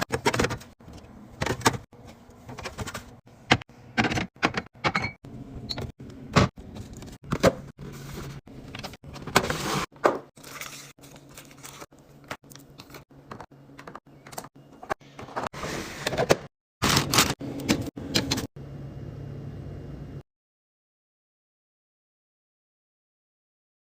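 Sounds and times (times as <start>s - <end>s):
containers clattering on shelves: 0.0s - 5.2s.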